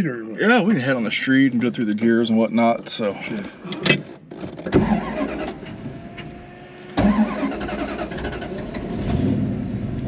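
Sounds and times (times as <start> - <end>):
car engine revving: 4.7 - 10.0.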